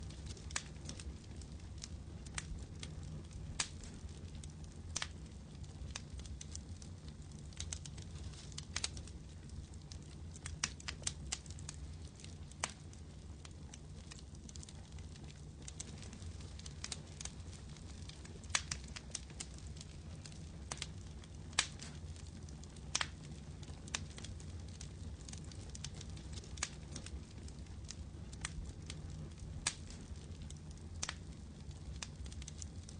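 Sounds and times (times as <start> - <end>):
campfire crackling and popping: 0.0 - 32.9
steady low rumble: 0.0 - 32.9.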